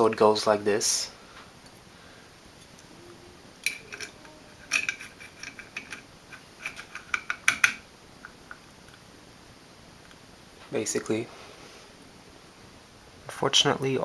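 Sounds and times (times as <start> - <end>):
small metal parts clicking: 3.6 - 7.8.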